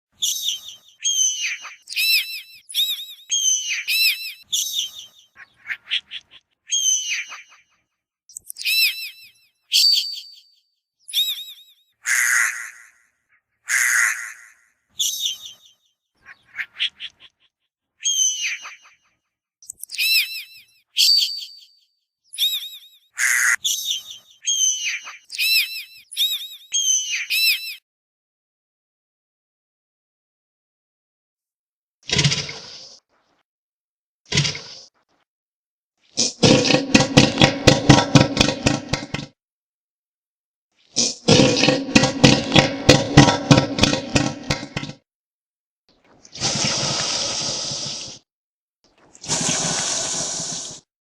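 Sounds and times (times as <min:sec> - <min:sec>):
seagull calls: 0:00.2 - 0:07.8, 0:13.7 - 0:15.5, 0:16.2 - 0:17.4, 0:22.4 - 0:27.8
gull calls: 0:12.0 - 0:13.0, 0:13.7 - 0:14.6, 0:23.2 - 0:25.8.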